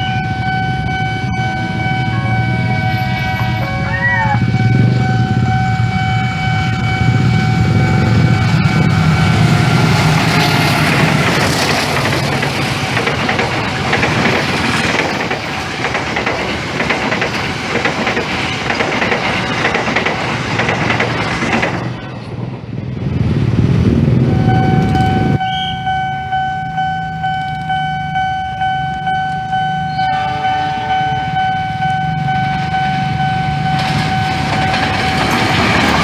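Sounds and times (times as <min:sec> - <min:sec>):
steady high tone: 0:00.0 - 0:12.4, 0:24.3 - 0:36.0
locomotive engine hum: 0:00.0 - 0:36.0
rolling rumble of carriages: 0:00.0 - 0:36.0
wheels clacking over rail joints: 0:06.2 - 0:22.5, 0:28.9 - 0:36.0.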